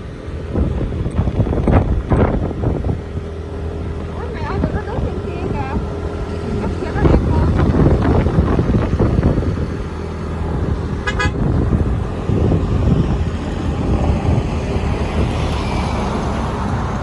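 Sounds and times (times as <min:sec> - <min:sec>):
motorbike wind and road rumble: 0:00.0 - 0:17.0
horn toot: 0:11.0 - 0:11.6.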